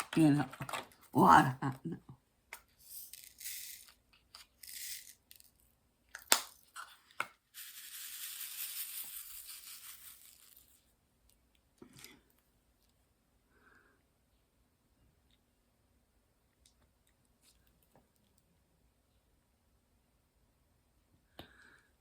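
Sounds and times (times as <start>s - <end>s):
rustling scrapes: 7.6s - 10.8s.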